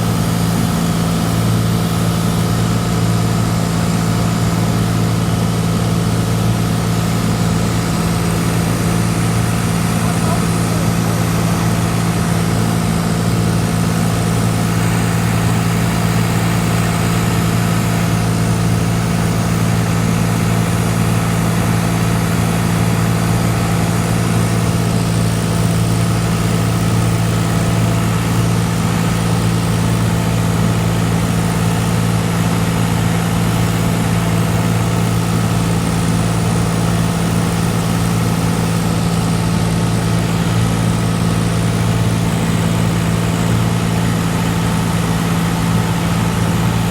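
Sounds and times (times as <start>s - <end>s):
propeller plane engine drone: 0.0s - 46.9s.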